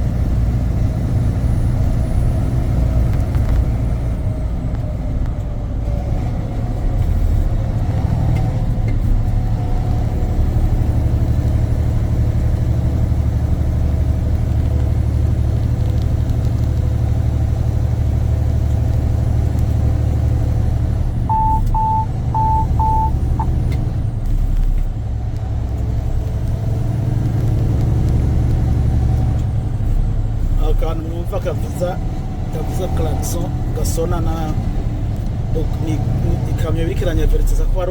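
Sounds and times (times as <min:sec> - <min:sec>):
truck engine and road noise: 0:00.0 - 0:37.9
short electronic beeps: 0:21.3 - 0:23.6.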